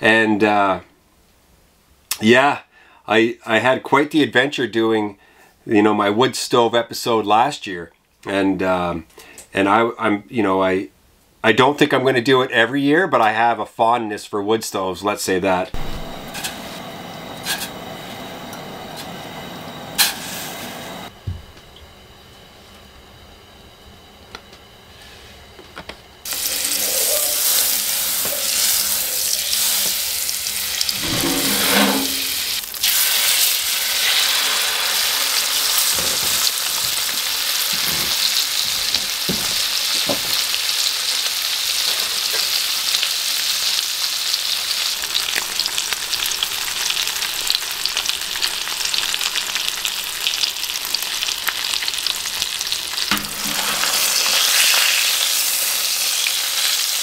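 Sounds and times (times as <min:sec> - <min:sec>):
fish frying in hot oil: 0:26.2 - 0:57.0.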